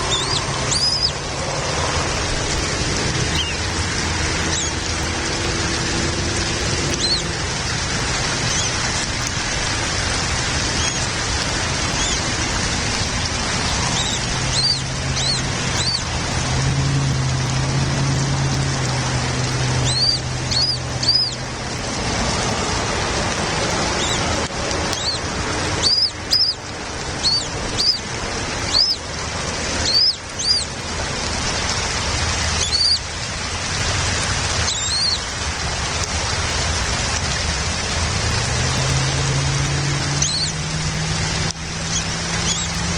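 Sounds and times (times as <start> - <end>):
high bird chirps: 0.0 - 1.2, 3.3 - 3.6, 7.0 - 7.3, 14.0 - 16.1, 19.8 - 21.4, 24.9 - 25.2, 25.8 - 26.6, 27.2 - 28.1, 28.7 - 29.0, 29.8 - 30.7, 32.6 - 33.0, 34.7 - 35.2, 40.2 - 40.6, 41.9 - 42.7
steady rain-like hiss: 0.0 - 42.9.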